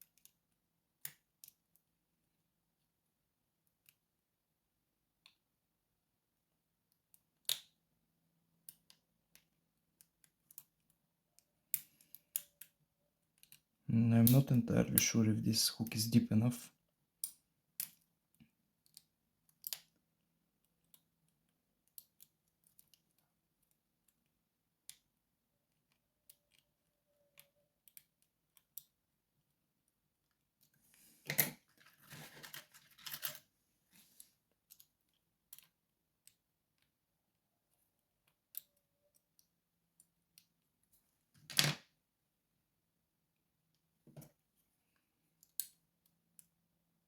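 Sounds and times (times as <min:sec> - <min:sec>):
padlock handling and rattling: 0:31.3 - 0:33.4.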